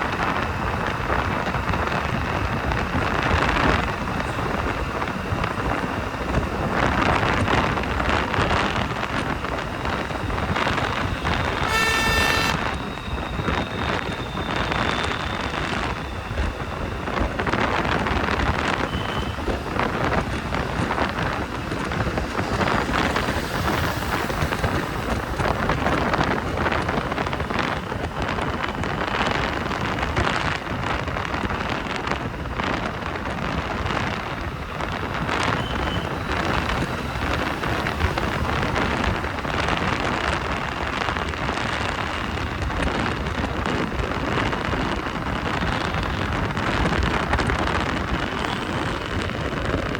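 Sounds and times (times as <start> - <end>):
wind buffeting microphone: 0.0 - 11.8, 12.5 - 49.9
rain and wet road hiss: 0.0 - 12.7, 13.8 - 49.9.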